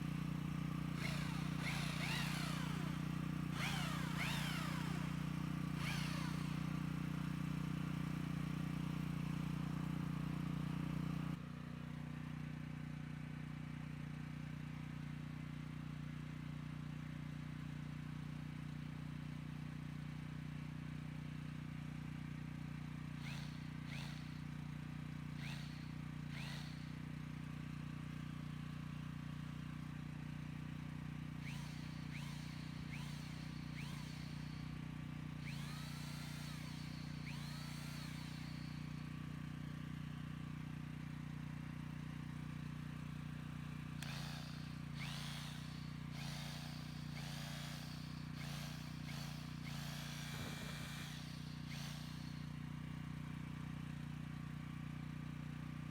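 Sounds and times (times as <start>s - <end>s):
hammer drill motor humming: 0.0s - 10.2s, 23.1s - 27.2s, 31.3s - 40.2s, 43.8s - 54.0s.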